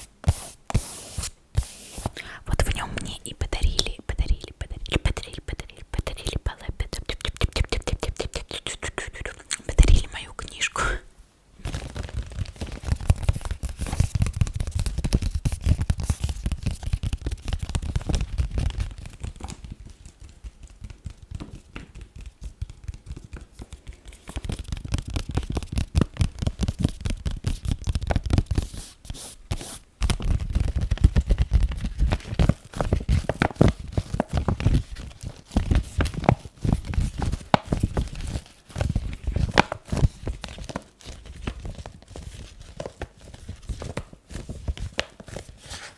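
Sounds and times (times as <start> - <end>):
rapid tapping and scratching: 11.7 - 28.7.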